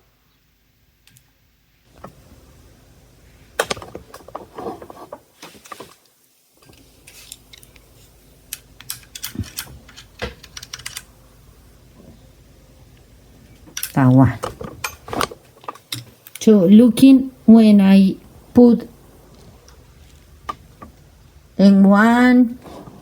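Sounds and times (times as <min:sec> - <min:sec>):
sewing machine parts clicking: 0:08.5 - 0:11.1.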